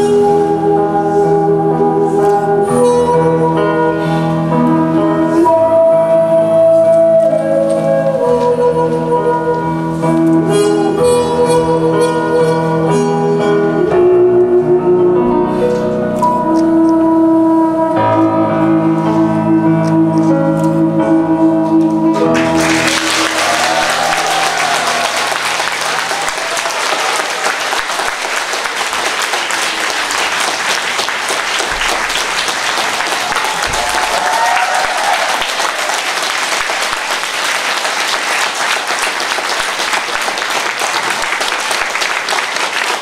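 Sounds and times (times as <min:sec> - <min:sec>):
audience applauding: 0:22.3 - 0:43.0.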